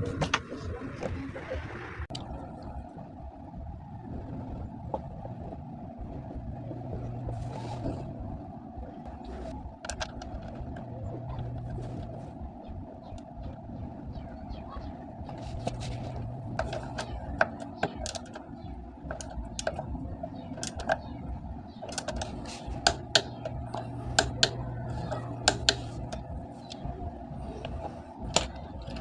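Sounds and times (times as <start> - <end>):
steady low hum: 0.0 - 29.0
hand tools clicking and tapping: 15.3 - 19.9, 20.5 - 21.0, 21.8 - 26.9, 27.5 - 29.0.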